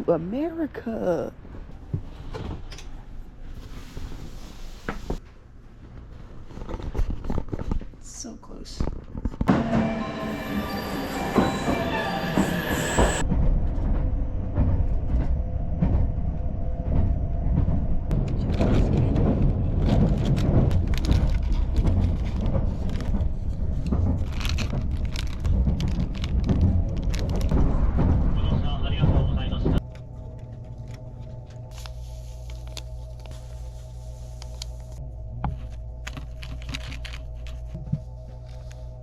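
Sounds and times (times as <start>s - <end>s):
train rumbling: 9.4s - 39.0s
wheels clacking on rails: 9.5s - 29.8s.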